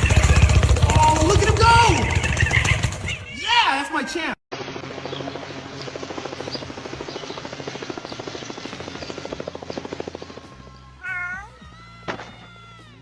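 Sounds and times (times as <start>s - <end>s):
cat meowing: 11.0s - 13.0s.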